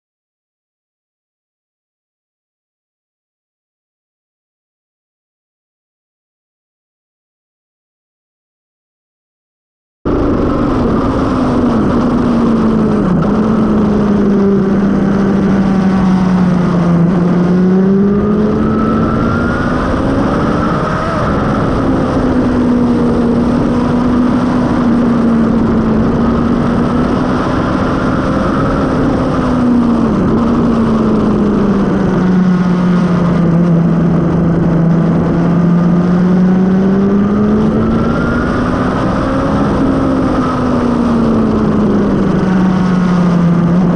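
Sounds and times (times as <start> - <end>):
motorcycle engine revving: 10.1 - 43.9
wind rushing over microphone: 10.1 - 43.9.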